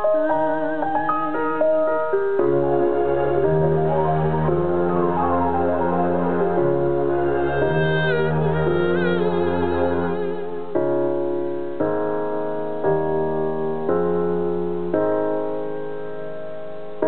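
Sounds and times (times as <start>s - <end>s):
wavering held note: 0.0s - 11.1s
slow piano chords: 0.0s - 17.0s.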